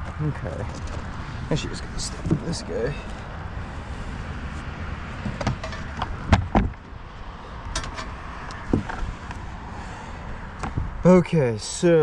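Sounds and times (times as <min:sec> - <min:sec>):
knocks and clunks: 0:02.0 - 0:02.6, 0:05.2 - 0:07.0, 0:07.7 - 0:09.1.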